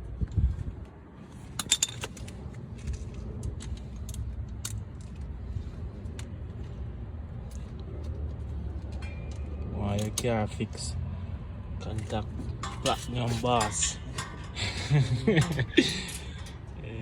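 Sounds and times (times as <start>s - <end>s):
hand tools clinking on metal: 8.8s - 10.8s, 11.8s - 17.0s.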